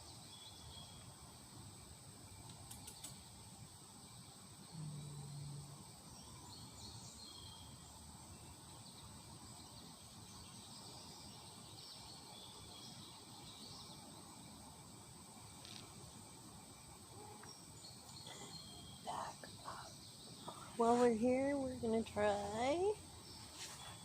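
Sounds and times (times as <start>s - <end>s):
high insect-like hum: 0.0s - 24.0s
faint bird chirps: 17.1s - 22.0s, 22.7s - 24.0s.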